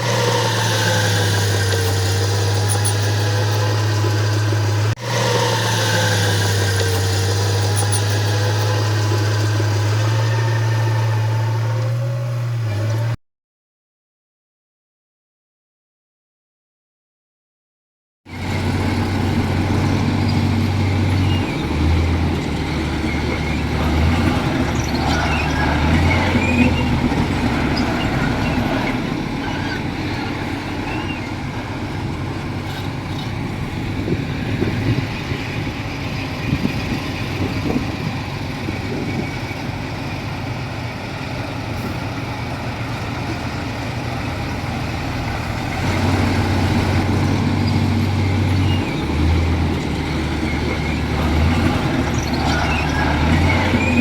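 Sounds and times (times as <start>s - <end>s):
bulldozer diesel engine running: 0.0s - 13.2s, 18.3s - 54.0s.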